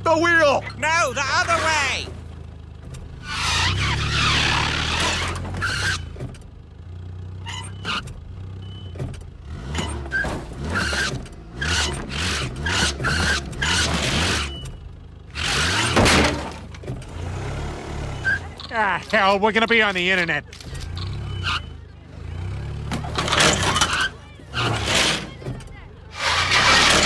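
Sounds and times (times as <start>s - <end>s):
cartoon car engine running: 0.0s - 27.0s.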